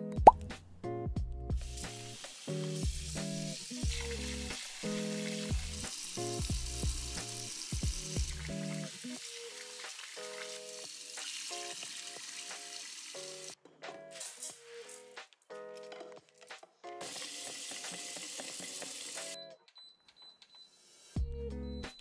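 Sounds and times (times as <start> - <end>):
soft background music: 0.0 - 22.0
food sizzling in a pan: 1.6 - 13.6, 17.0 - 19.4.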